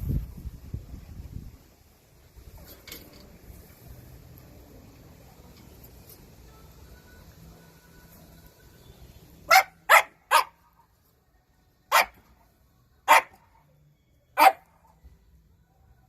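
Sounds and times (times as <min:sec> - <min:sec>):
dog barking: 0:09.5 - 0:10.7, 0:11.9 - 0:12.3, 0:13.1 - 0:13.5, 0:14.4 - 0:14.8.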